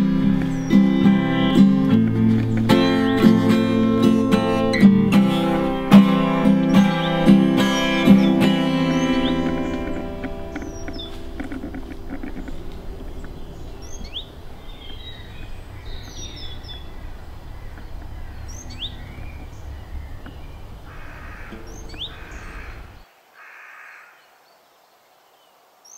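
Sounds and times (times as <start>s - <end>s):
wind rumble on microphone: 0.0s - 23.0s
harsh bird caws: 6.7s - 24.4s.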